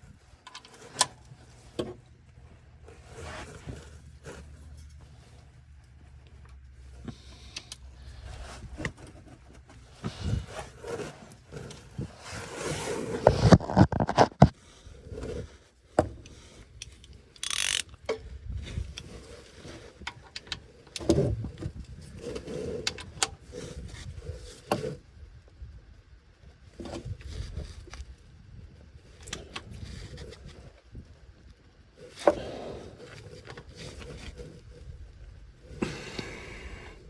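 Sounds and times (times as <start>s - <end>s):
hand tools and metal parts rattling: 16.2s - 23.3s.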